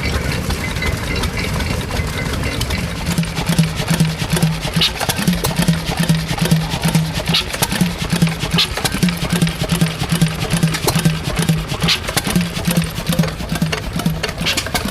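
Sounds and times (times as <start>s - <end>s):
stationary engine pulsing: 0.0s - 14.9s.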